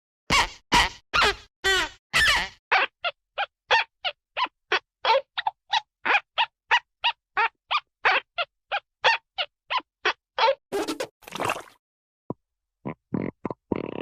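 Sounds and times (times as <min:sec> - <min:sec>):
cartoon animal-like calls: 0:00.3 - 0:10.6.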